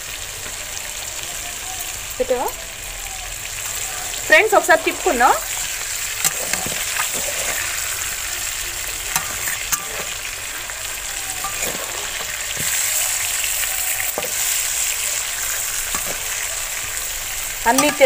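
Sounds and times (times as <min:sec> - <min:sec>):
vegetables sizzling in hot oil: 0:00.0 - 0:18.0
spatula knocking and scraping pan: 0:11.4 - 0:12.8, 0:15.8 - 0:16.4, 0:17.7 - 0:18.0.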